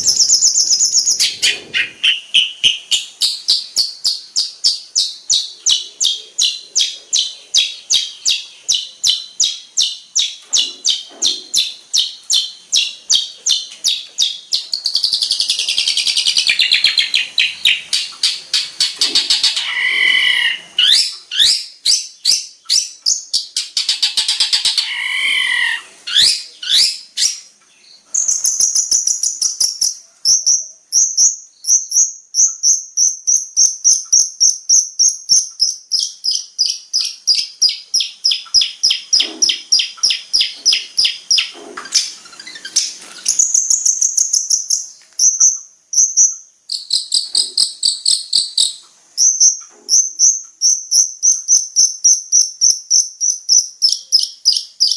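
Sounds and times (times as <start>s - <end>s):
shrike singing: 0.0s - 27.5s.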